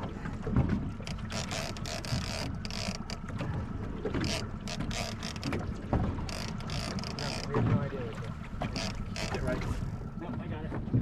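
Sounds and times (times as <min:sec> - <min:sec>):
boat engine rumble: 0:00.0 - 0:11.0
fishing reel ratcheting: 0:01.0 - 0:03.2, 0:04.2 - 0:05.6, 0:06.2 - 0:07.5, 0:08.7 - 0:09.6.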